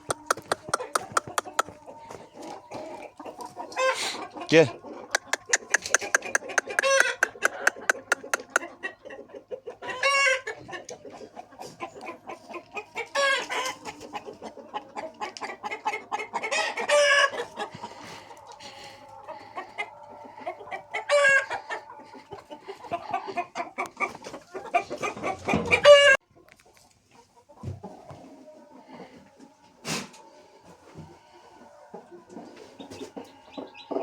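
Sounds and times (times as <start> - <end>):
chickens clucking: 0.0 - 34.0
rooster crowing: 16.5 - 23.4.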